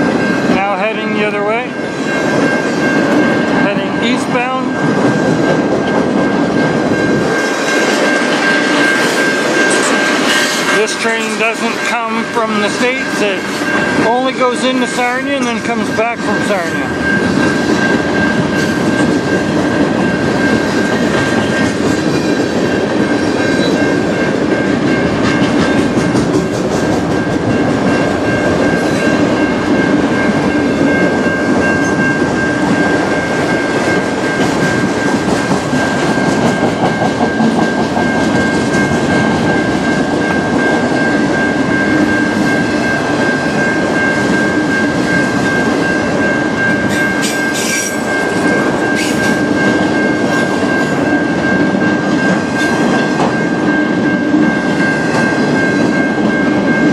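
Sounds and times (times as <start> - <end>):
freight train rumble: 0.0 - 56.9
steady high-pitched tone: 1.2 - 26.3, 27.1 - 56.9
train wheels clicking over rail joints: 17.0 - 53.7.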